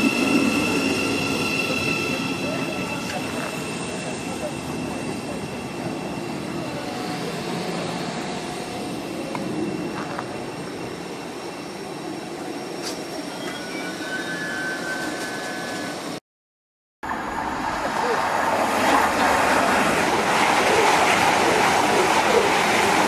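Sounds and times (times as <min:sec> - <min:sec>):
train approaching rush: 0:00.0 - 0:16.2, 0:17.0 - 0:23.0
train pulling away: 0:00.0 - 0:16.2.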